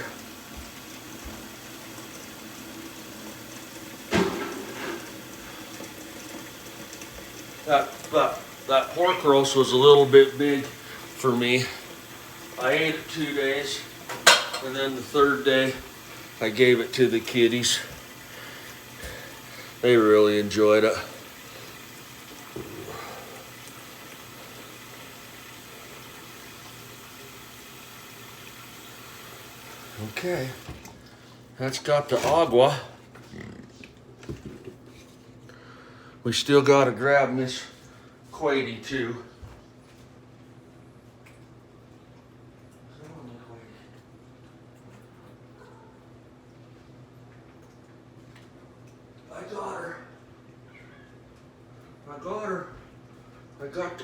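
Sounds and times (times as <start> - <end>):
water running from a tap: 0.0 - 32.9.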